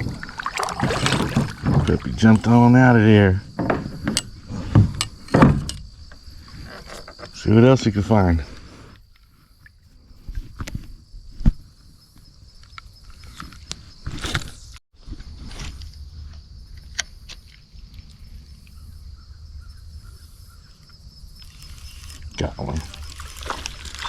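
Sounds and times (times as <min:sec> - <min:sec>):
insects chirring: 0:00.0 - 0:24.0
sharp clicks and knocks: 0:03.5 - 0:06.2.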